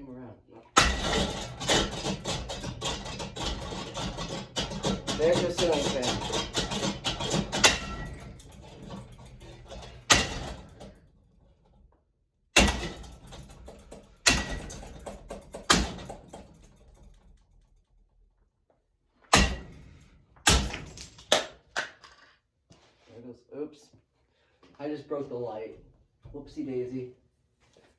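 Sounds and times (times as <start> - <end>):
ceiling fan being smashed: 0.8 - 11.2, 12.6 - 17.4, 19.3 - 22.0
hard metallic knocks and clanks: 0.8 - 11.8, 12.6 - 17.6, 19.3 - 21.9.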